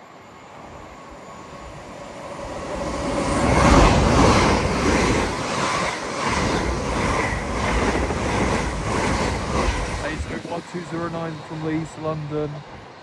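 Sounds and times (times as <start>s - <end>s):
train wheels rumbling on rails: 1.7s - 13.0s.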